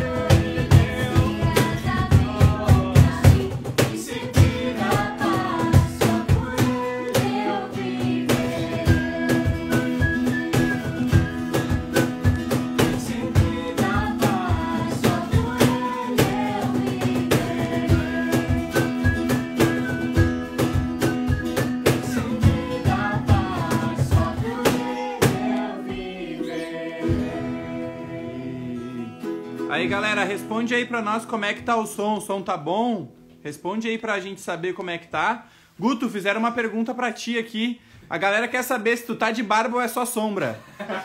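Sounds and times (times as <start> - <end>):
person singing: 0.0 - 11.3, 12.8 - 30.2
drum beat: 0.0 - 26.2, 26.8 - 27.8
guitar: 0.0 - 33.5.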